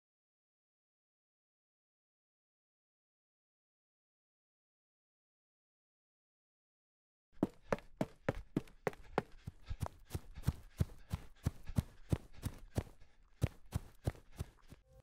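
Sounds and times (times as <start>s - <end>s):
running footsteps on leaves: 7.4s - 14.8s.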